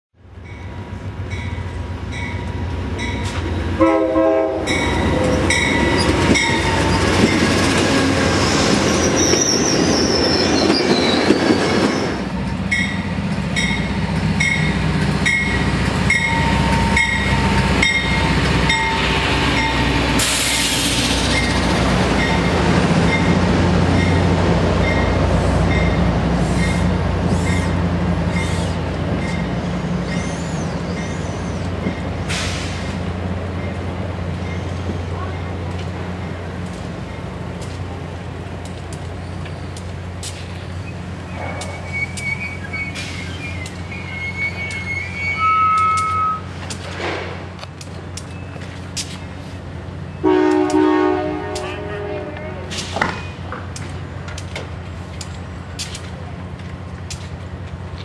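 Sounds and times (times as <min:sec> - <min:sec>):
train bell ringing: 0:00.4 - 0:03.4, 0:04.6 - 0:07.5, 0:12.7 - 0:20.0, 0:24.0 - 0:26.1
train horn blast: 0:03.8 - 0:05.8, 0:50.2 - 0:52.8
train wheels squealing: 0:04.7 - 0:07.7, 0:08.4 - 0:13.0, 0:13.6 - 0:22.5, 0:24.8 - 0:32.9, 0:34.4 - 0:34.9, 0:39.1 - 0:39.9, 0:40.6 - 0:46.5, 0:48.2 - 0:50.2
air hissing: 0:20.1 - 0:21.4.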